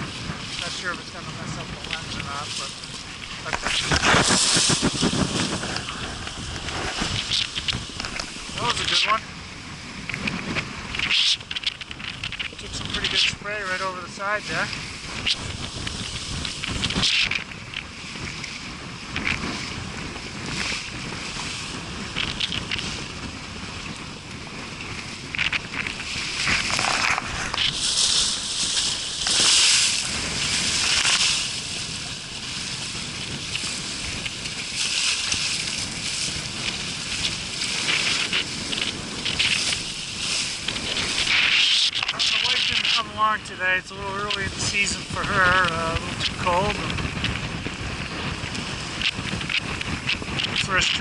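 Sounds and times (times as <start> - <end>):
water splashing: 0.0 - 9.4, 23.9 - 46.9
water sloshing against hull: 0.0 - 51.0
wind buffeting microphone: 0.0 - 51.0.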